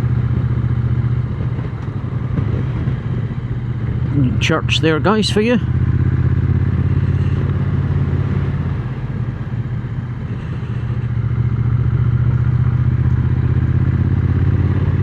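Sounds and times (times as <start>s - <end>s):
wind noise on microphone: 0.0s - 5.5s, 6.2s - 11.4s
motorcycle engine running: 0.0s - 15.0s.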